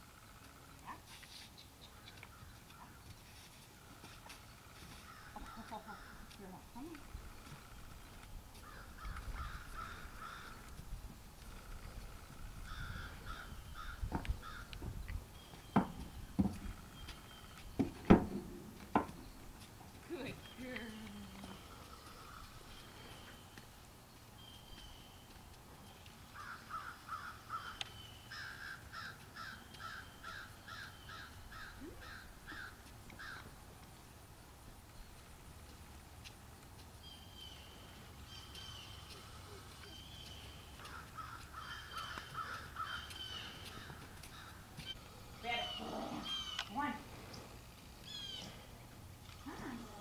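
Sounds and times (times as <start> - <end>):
bird calling repeated notes: 24.4 - 33.4, 37.0 - 47.0, 48.0 - 48.6
bird calling rapidly: 38.3 - 47.0, 48.0 - 48.6.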